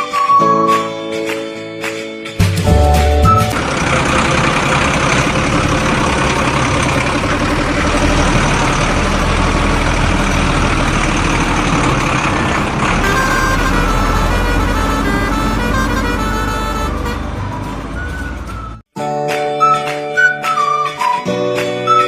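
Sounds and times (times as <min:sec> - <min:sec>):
heavy vehicle engine running: 0:02.7 - 0:18.9
steady tones: 0:03.2 - 0:18.8.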